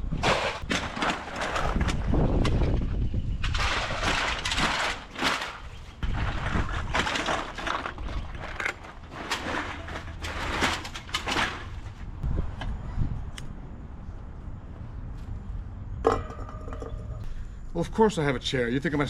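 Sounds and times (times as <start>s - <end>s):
aluminium cans being crushed: 0.1s - 2.8s, 3.4s - 12.1s.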